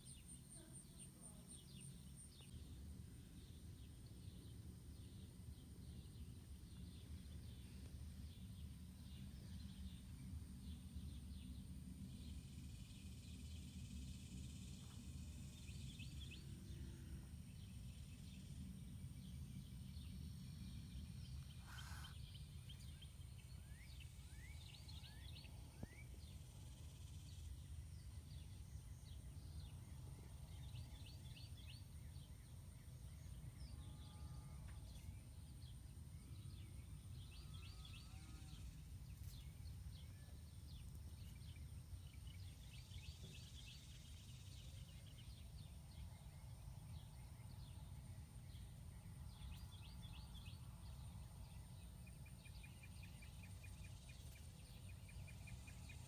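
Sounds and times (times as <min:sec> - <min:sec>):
distant bird chirps: 0:21.3 - 0:23.0.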